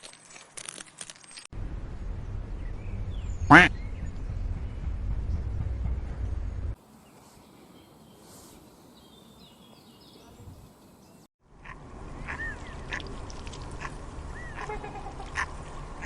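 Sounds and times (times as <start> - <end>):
waterfowl quacking and honking: 3.5 - 3.7, 11.6 - 15.6.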